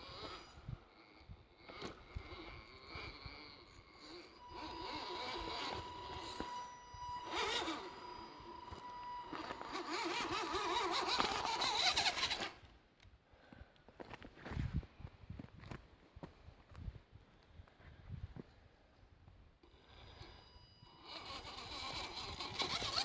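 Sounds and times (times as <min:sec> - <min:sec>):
steady high whine: 0:00.0 - 0:12.8, 0:19.6 - 0:23.0
truck engine under load: 0:01.1 - 0:12.6, 0:19.6 - 0:23.0.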